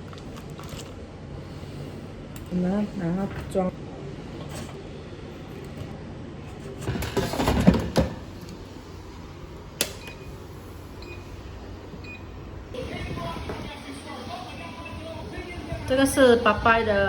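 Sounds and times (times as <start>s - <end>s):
kitchen items clattering: 5.5s - 8.5s.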